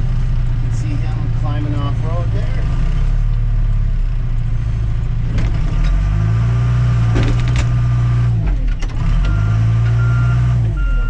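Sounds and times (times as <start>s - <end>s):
diesel engine under load: 0.0s - 11.0s
knocks: 7.1s - 7.7s
reversing alarm beeping: 9.3s - 11.0s.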